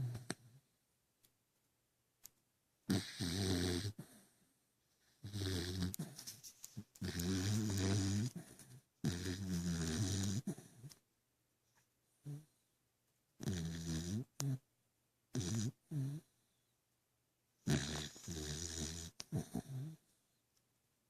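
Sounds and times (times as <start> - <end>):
dog snoring: 2.9 - 4.4, 5.2 - 6.3, 7.0 - 10.9, 12.2 - 12.5, 13.4 - 14.6, 15.3 - 16.3, 17.6 - 20.0.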